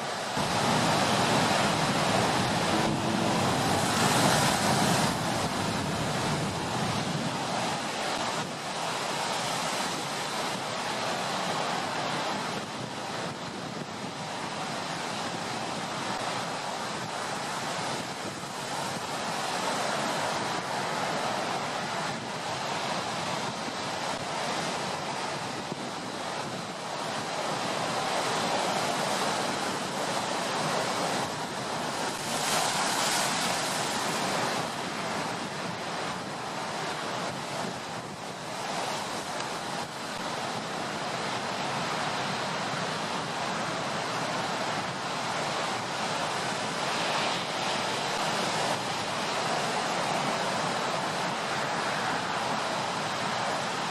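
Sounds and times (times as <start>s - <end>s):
wind: 0.0s - 53.9s
heavy surf breaking: 0.2s - 9.3s.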